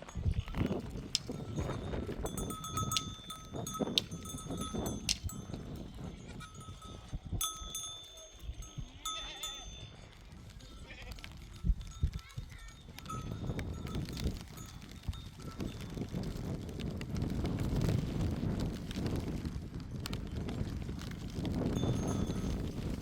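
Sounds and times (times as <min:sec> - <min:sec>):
livestock bells clinking: 0:00.0 - 0:16.1, 0:21.7 - 0:23.0.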